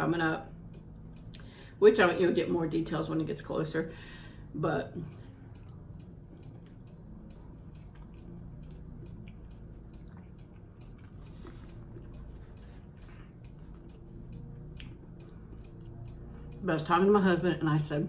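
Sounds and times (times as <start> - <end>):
person chewing noodles: 5.5 - 16.4.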